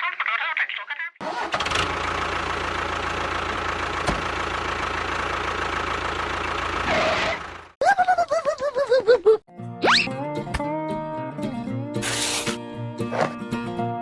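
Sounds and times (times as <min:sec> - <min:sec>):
small engine running: 0:01.2 - 0:07.7.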